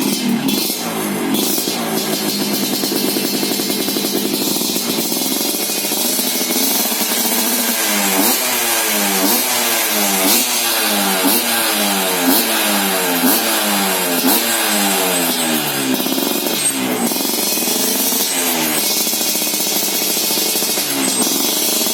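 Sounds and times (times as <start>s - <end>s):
two-stroke motorcycle engine revving: 0.0s - 21.9s.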